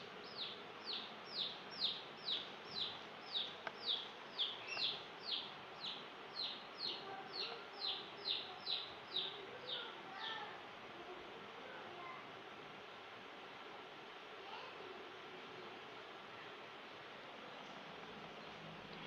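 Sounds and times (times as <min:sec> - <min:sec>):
bird chirping: 0:00.0 - 0:10.4.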